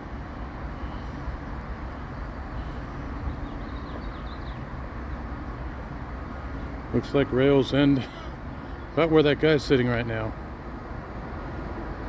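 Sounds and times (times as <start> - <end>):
low rumble of distant engines: 0.0 - 12.0.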